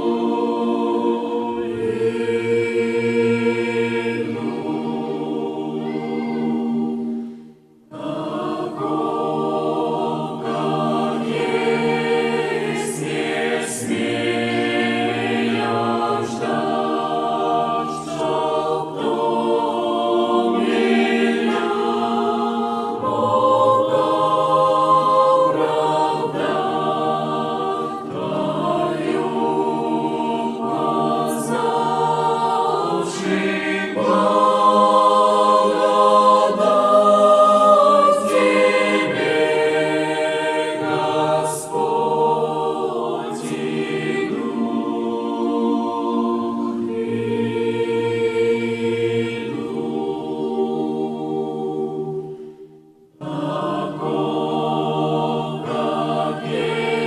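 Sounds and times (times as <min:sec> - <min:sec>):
youth choir singing a hymn: 0:00.0 - 0:57.0.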